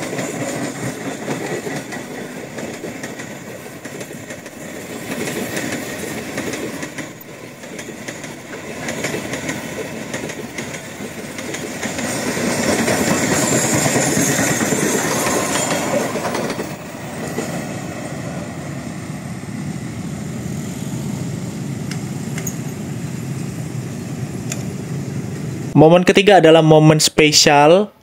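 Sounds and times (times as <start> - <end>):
steel wheels clattering over rail joints: 0.0 - 18.2.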